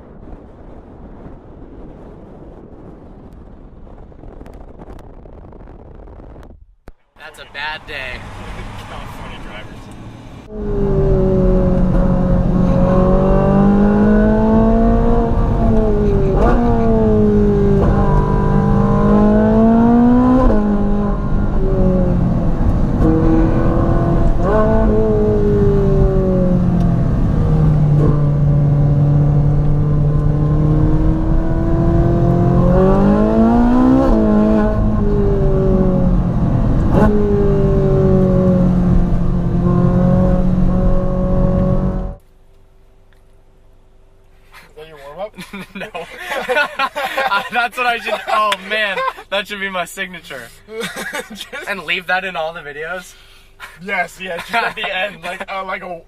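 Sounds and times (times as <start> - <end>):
sports car engine accelerating: 7.4 - 44.2.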